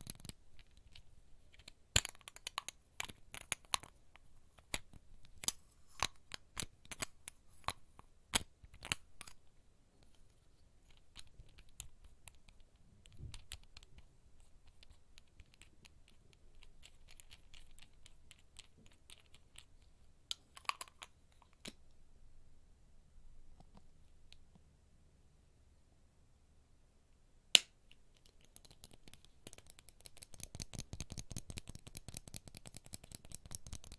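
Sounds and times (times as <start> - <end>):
fingertip tapping on objects: 27.6 - 33.9.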